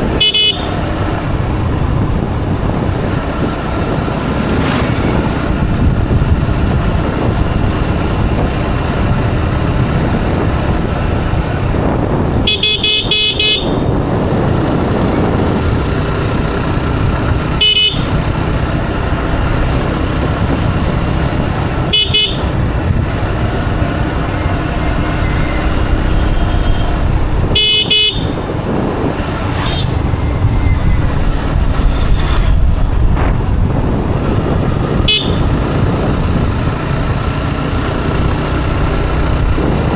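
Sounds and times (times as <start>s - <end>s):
motorcycle engine running: 0.0s - 39.9s
road noise: 0.0s - 39.9s
horn blasts: 0.1s - 1.0s, 12.4s - 14.0s, 17.5s - 18.3s, 21.7s - 23.0s, 23.8s - 33.3s, 35.0s - 35.8s.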